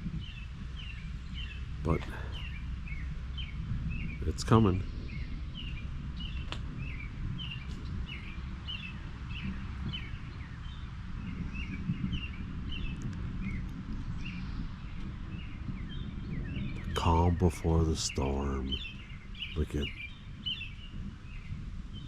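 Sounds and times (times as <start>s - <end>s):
birds chirping: 0.0s - 22.0s
steady low rumble: 0.0s - 22.0s.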